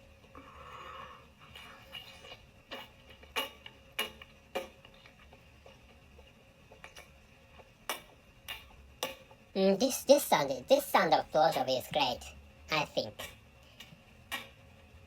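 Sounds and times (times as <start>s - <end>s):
wet mouth smacks and clicks: 1.4s - 5.2s, 13.2s - 14.6s.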